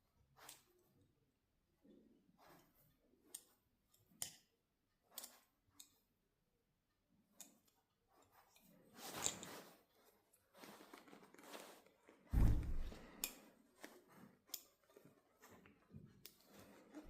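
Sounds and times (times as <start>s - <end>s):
scraping and rustling of handling: 7.2s - 17.0s
heavy thump: 12.3s - 13.0s.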